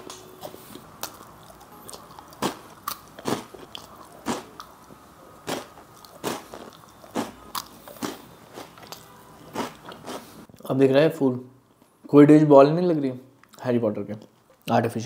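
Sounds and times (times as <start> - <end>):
chewing with wet lip smacks: 1.0 - 4.7.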